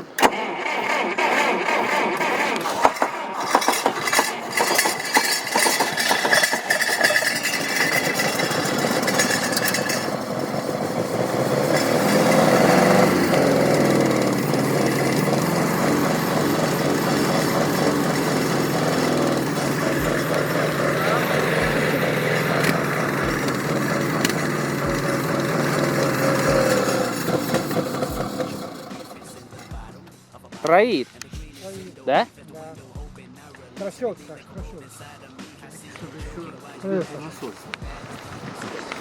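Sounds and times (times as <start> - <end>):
engine cranking on starter: 0.0 - 30.0
misfiring engine running: 0.0 - 30.0.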